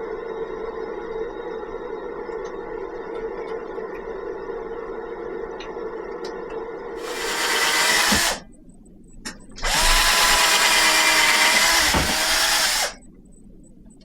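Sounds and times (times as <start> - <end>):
electric drill whining: 7.0 - 8.4, 9.6 - 13.0.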